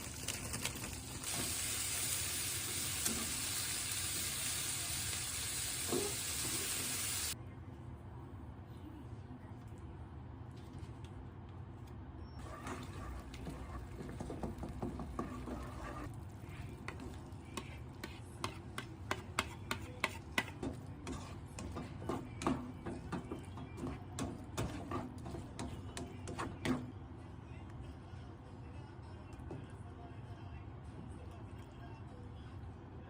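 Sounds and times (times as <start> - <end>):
utensil stirring in cookware: 12.4 - 26.6.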